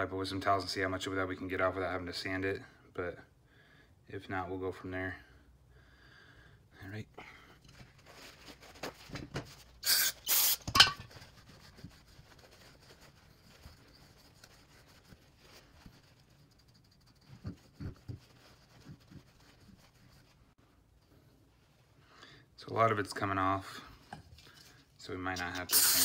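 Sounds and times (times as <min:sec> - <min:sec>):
aerosol spray hissing: 0:09.8 - 0:10.7, 0:25.4 - 0:26.0.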